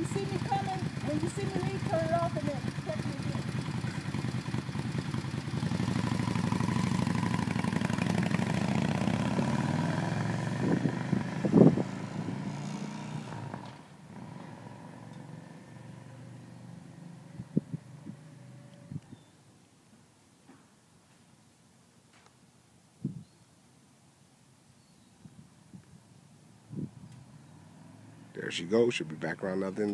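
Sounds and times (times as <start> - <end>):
motorcycle engine rumbling: 0.0 - 19.2.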